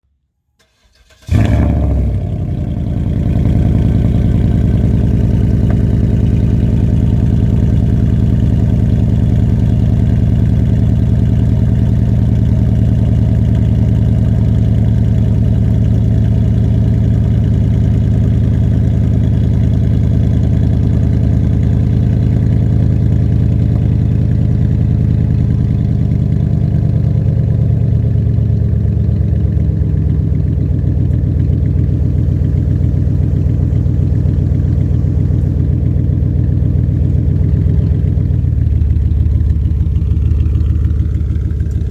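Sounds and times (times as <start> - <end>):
car engine cold start: 0.6 - 3.2
loud engine idling: 1.3 - 41.9.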